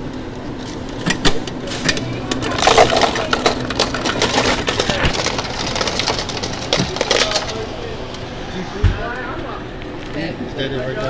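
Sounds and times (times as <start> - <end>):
sharp clicks and crinkling: 0.0 - 8.3.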